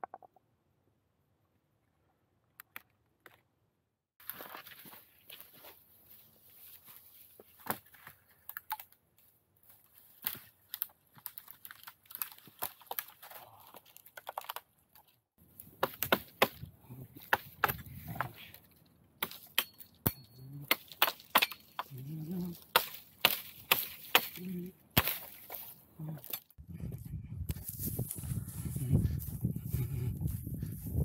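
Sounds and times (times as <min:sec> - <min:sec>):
low voice murmuring: 0:21.9 - 0:22.7, 0:24.4 - 0:24.8.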